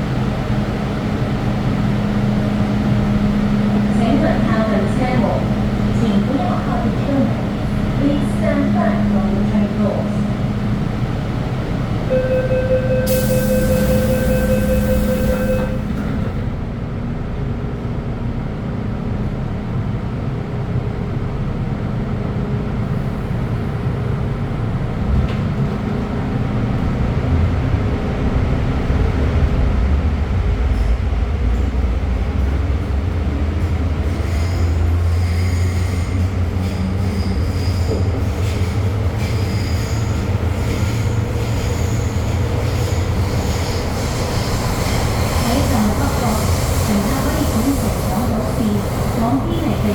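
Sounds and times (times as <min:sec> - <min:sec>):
train wheels rumbling in tunnel: 0:00.0 - 0:49.9
high-pitched wheel squeal: 0:12.2 - 0:15.8.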